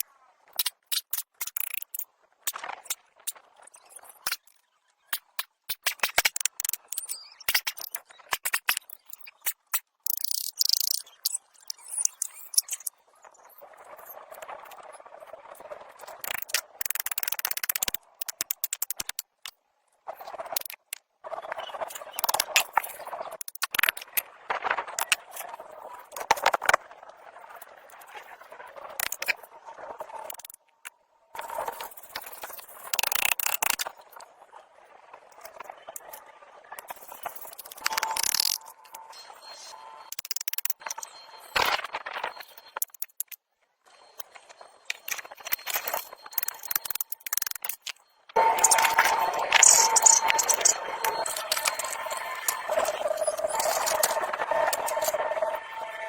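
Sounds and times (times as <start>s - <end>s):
sharp clicks and knocks: 16.3s - 19.6s
scraping noise: 48.4s - 56.0s.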